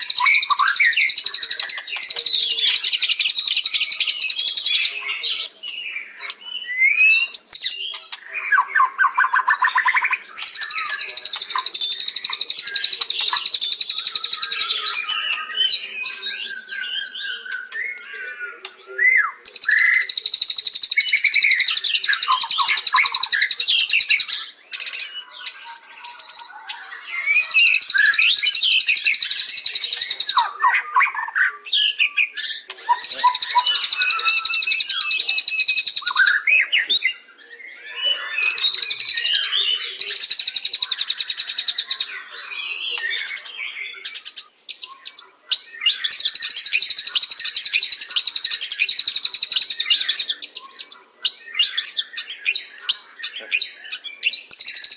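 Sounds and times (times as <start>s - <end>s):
bird chattering trills: 0.0s - 18.8s, 32.0s - 36.5s
bird whistled phrases: 0.0s - 54.9s.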